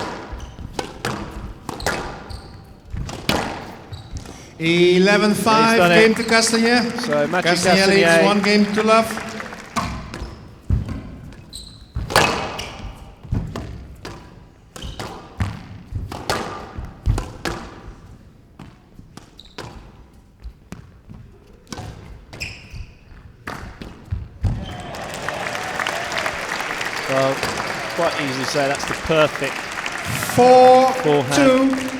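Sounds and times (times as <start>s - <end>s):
squash ball hits: 2.9s - 3.9s, 12.0s - 17.8s
applause: 4.6s - 10.4s, 24.5s - 31.9s.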